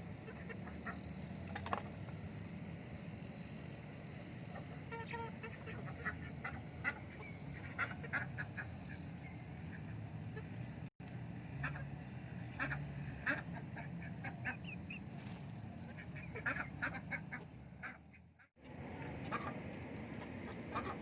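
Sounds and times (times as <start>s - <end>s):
ducks quacking: 0.1s - 1.1s, 4.5s - 10.6s, 11.5s - 15.0s, 15.8s - 19.6s, 20.2s - 21.0s.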